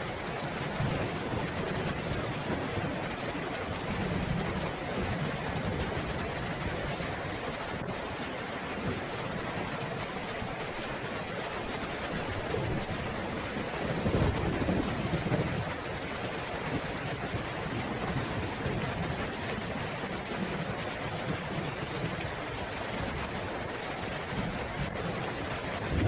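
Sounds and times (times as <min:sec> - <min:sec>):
steady rainfall: 0:00.0 - 0:26.0
rolling thunder: 0:25.8 - 0:26.0.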